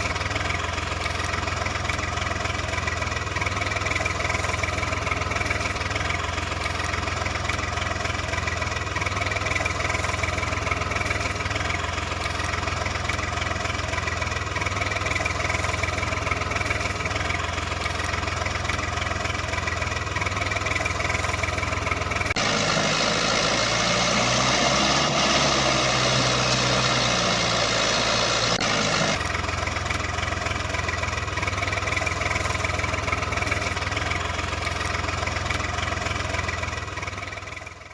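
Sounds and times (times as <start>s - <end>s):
engine idling: 0.0s - 37.9s
bright noisy engine wavering pitch: 22.4s - 29.2s.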